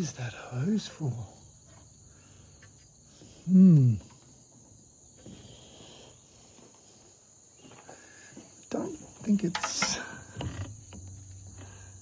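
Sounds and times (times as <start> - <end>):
crickets chirring: 0.0 - 12.0
man humming: 3.5 - 4.1.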